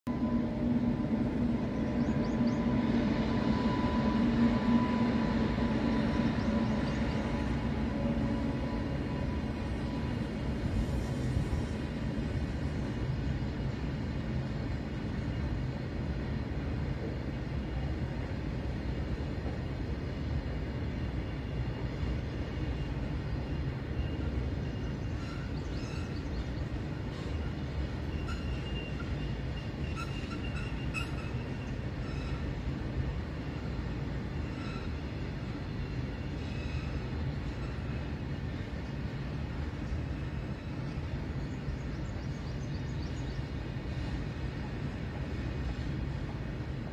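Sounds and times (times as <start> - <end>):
freight train wheels rumbling: 0.1 - 46.9
high wheel squeals: 23.5 - 26.4, 27.1 - 32.7, 34.4 - 35.2.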